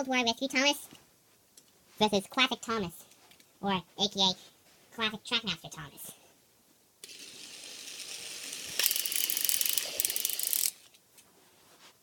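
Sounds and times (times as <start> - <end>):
toy train motor whirring: 7.0 - 10.9.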